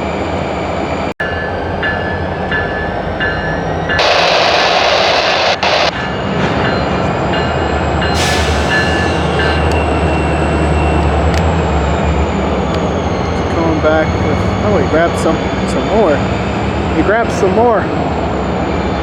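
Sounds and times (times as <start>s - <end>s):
diesel locomotive engine running: 0.0s - 19.0s.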